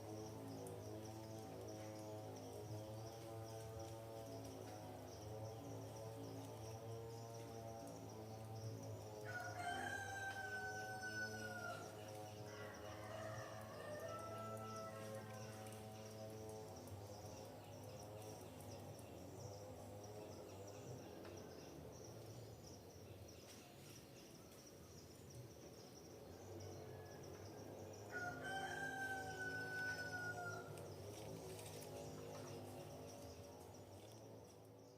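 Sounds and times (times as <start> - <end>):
pulsing high insect trill: 0.0 - 34.9
rooster crowing: 9.2 - 11.9, 12.5 - 15.5, 28.1 - 30.8.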